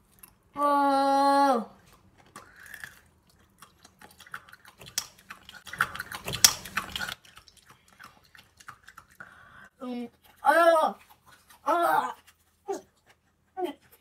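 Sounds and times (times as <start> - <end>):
chewing and crunching: 0.0 - 0.6, 1.8 - 14.0
egg shell cracking: 4.8 - 5.4.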